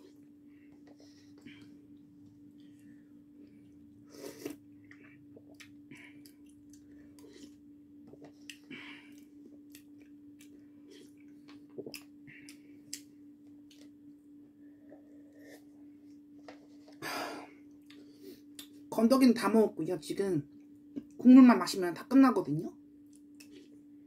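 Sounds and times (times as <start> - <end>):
steady low hum: 0.0 - 24.0
chewing and smacking noodles: 3.4 - 14.0, 23.0 - 23.8.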